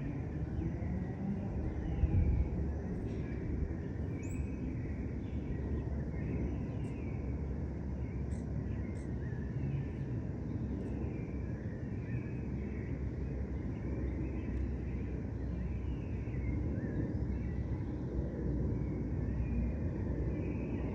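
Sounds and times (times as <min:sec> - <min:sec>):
distant city traffic: 0:00.0 - 0:06.6.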